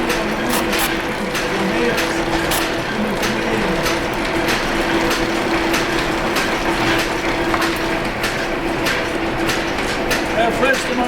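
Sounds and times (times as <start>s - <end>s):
machine humming: 0.0s - 10.2s
sharp mechanical clacks: 0.1s - 5.2s.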